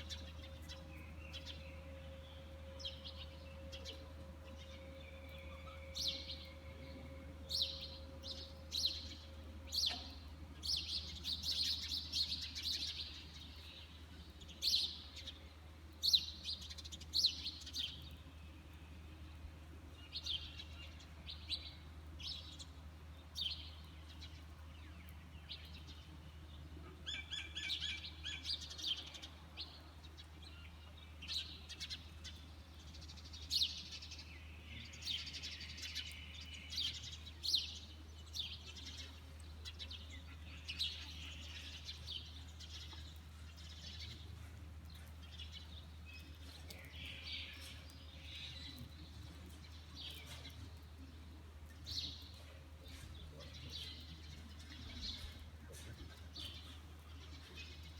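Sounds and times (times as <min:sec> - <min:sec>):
steady low hum: 0:00.0 - 0:27.3
birds chirping: 0:00.0 - 0:57.9.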